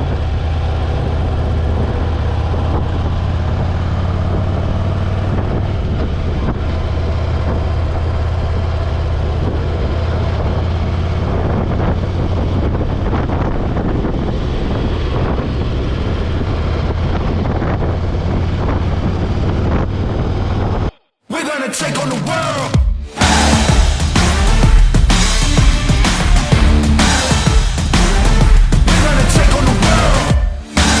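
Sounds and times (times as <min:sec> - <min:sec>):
motorcycle engine running: 0:00.0 - 0:20.2, 0:23.2 - 0:31.0
wind noise on microphone: 0:00.0 - 0:20.9.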